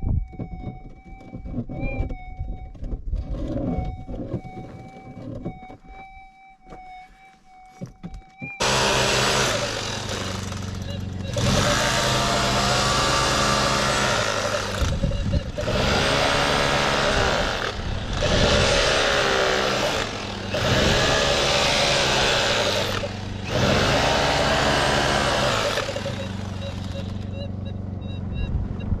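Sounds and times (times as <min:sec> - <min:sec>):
low engine hum: 0:08.4 - 0:29.0
motorised tool running: 0:08.6 - 0:27.8.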